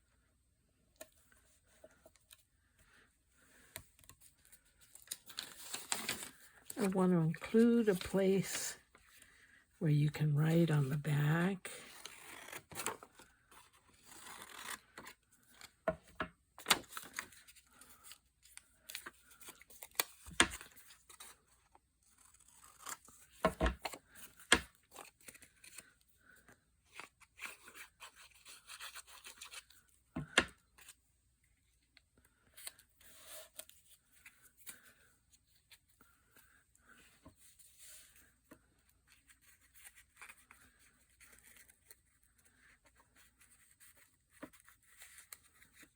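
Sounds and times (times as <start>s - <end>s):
paper rustling and scraping: 4.2s - 8.6s, 11.9s - 15.7s.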